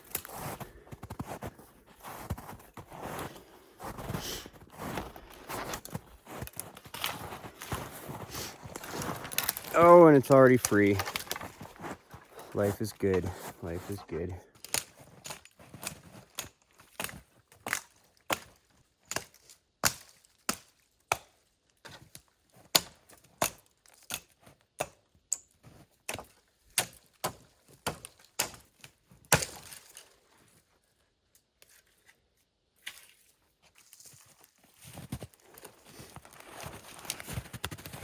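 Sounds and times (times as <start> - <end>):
hatchet chopping wood: 16.4 - 21.4, 22.7 - 25.4, 26.1 - 28.7, 29.3 - 29.8.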